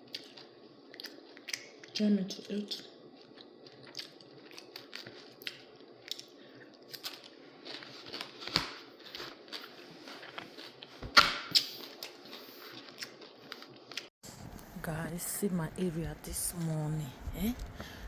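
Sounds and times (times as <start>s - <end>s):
chewing close to microphone: 0.0s - 11.0s, 11.6s - 14.7s.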